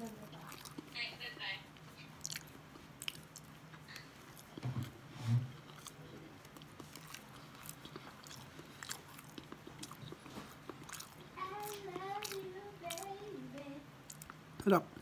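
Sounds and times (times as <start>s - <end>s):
person chewing: 0.0s - 1.0s, 1.7s - 13.3s, 14.0s - 14.4s
steady low hum: 0.0s - 15.0s
wet mouth clicks: 14.0s - 14.4s.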